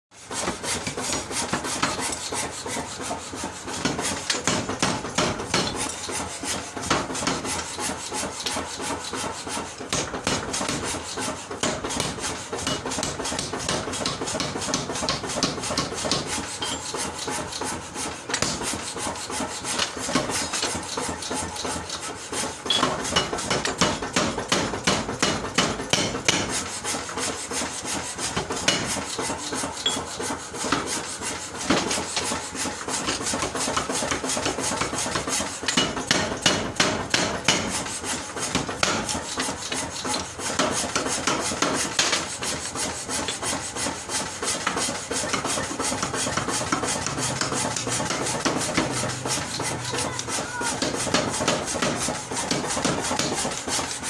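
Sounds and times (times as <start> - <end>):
forging hammer blows: 0.3 - 54.0.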